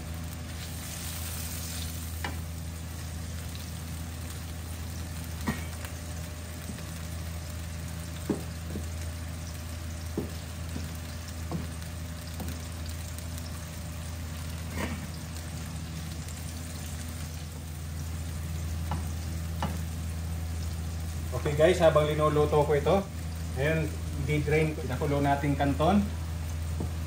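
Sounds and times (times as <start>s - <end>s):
food sizzling in oil: 0.0s - 27.0s
wooden spatula knocking on pan: 8.2s - 8.9s, 10.1s - 12.6s, 18.8s - 19.8s.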